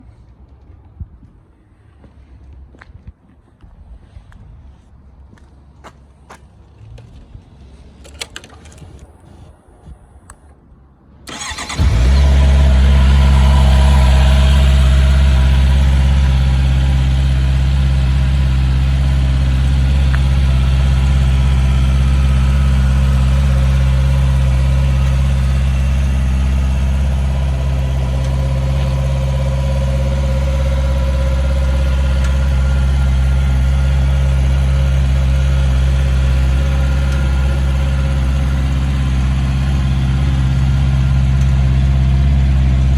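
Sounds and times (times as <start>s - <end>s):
motorcycle engine starting and idling: 11.3s - 42.9s.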